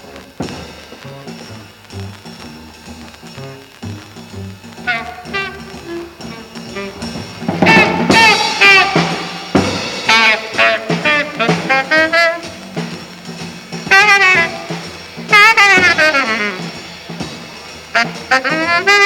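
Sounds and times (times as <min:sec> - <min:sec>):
double bass: 0:00.0 - 0:19.0
jazz drums: 0:00.0 - 0:19.0
tenor saxophone playing: 0:03.2 - 0:19.0.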